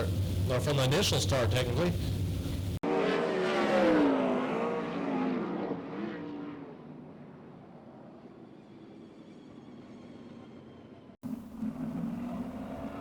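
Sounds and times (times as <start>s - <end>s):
race car engines passing: 2.8s - 7.3s, 11.2s - 13.0s.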